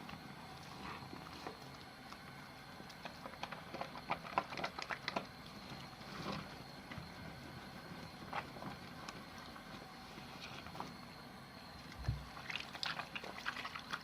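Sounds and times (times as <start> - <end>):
wet soap squishing: 11.9 - 14.0.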